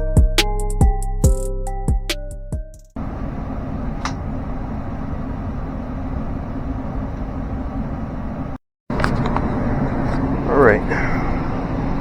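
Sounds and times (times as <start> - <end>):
blower motor humming: 3.0 - 12.0.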